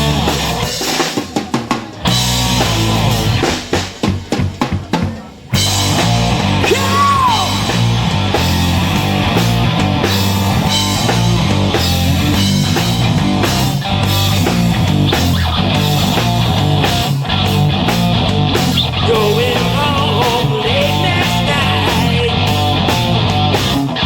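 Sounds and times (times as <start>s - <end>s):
drum hits: 0.0s - 23.9s
heavy rock band playing: 0.0s - 24.0s.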